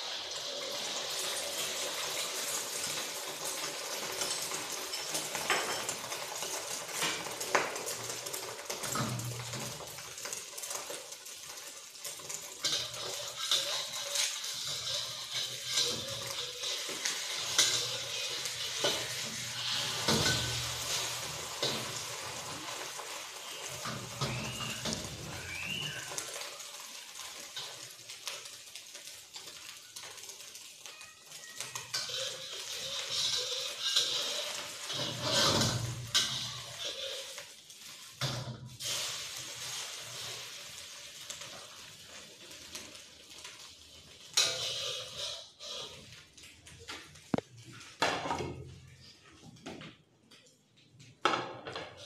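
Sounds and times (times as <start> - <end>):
egg sizzling in hot oil: 0.0 - 48.0
metal spatula scraping a pan: 8.2 - 30.7, 31.4 - 46.4.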